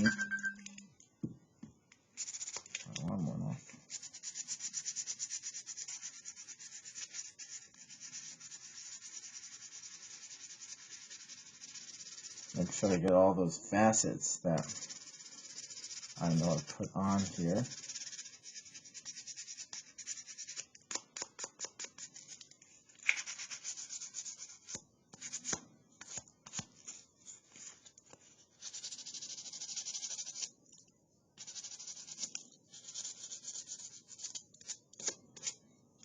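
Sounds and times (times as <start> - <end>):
sandpaper rubbing wood: 3.9 - 12.7, 14.6 - 20.6.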